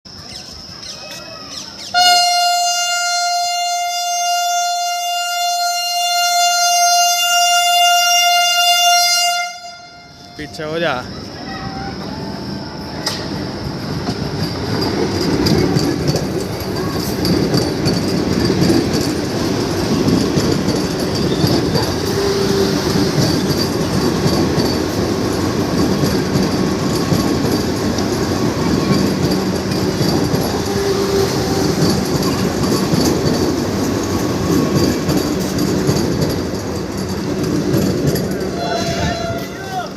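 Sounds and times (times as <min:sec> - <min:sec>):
train rumbling on rails: 0:00.1 - 0:39.9
wheels clicking over rail joints: 0:13.0 - 0:39.9.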